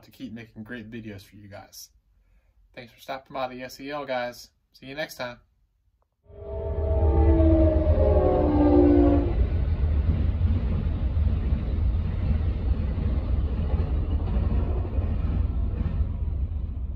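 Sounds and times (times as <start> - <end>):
train cars rumbling: 6.4 - 16.9.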